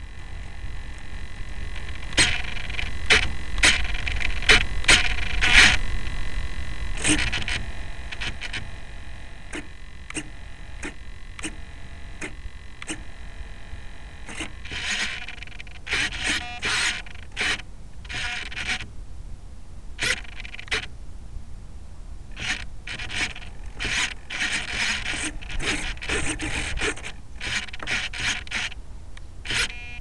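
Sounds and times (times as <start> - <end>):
scraping and rustling on microphone: 0.0 - 6.3, 7.0 - 13.1, 22.4 - 28.8
faint steady whine: 0.0 - 30.0.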